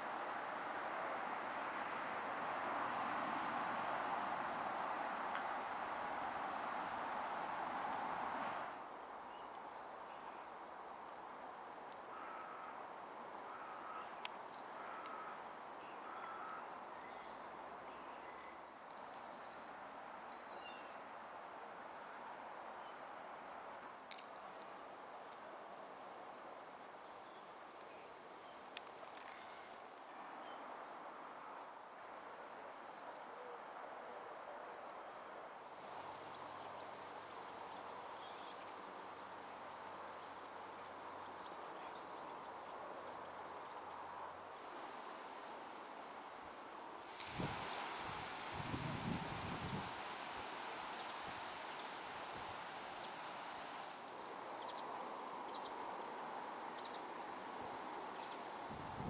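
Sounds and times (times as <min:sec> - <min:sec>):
outdoor background noise: 0:00.0 - 0:59.0
steady background hiss: 0:00.0 - 0:59.0
short repeated bird calls: 0:13.5 - 0:15.4.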